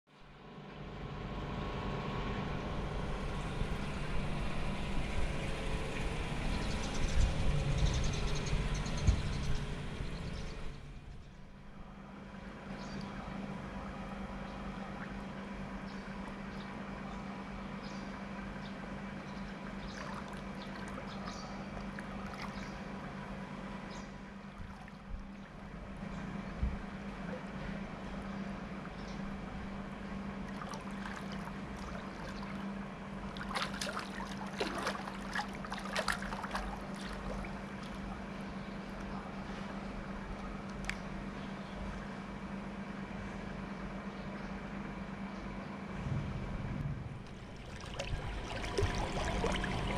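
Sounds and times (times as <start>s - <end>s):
low hum underwater: 0.1s - 49.9s
water noise: 19.0s - 41.4s, 45.9s - 49.9s.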